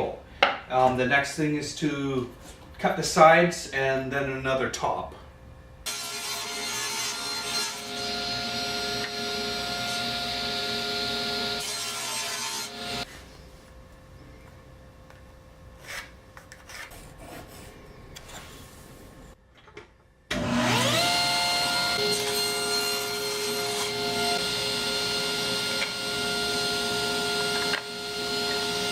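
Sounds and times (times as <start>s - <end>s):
electric saw cutting wood: 5.9s - 13.1s, 20.3s - 28.9s.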